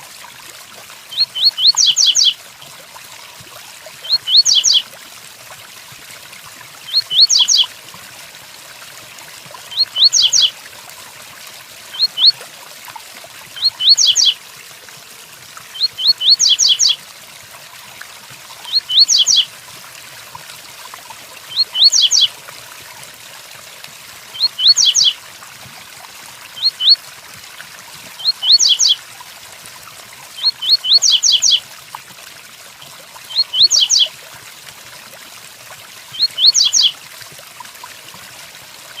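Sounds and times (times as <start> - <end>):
steady rain: 38.6 - 39.0.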